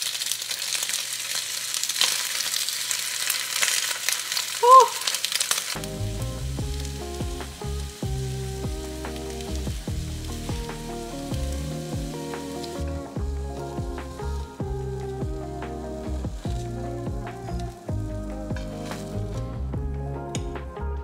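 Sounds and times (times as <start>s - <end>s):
food sizzling in a frying pan: 0.0s - 19.7s
background music with bass: 5.8s - 21.0s.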